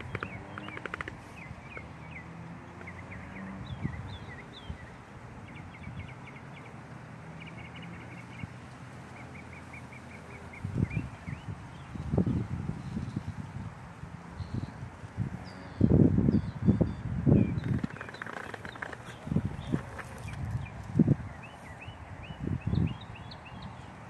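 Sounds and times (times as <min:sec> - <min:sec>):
small birds chirping: 0:00.0 - 0:13.4, 0:15.4 - 0:24.0
wind on microphone: 0:02.9 - 0:06.1, 0:10.5 - 0:24.0.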